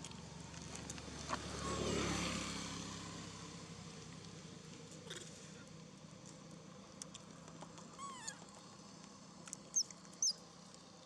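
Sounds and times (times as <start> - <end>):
baby monkey calling: 9.8 - 10.4.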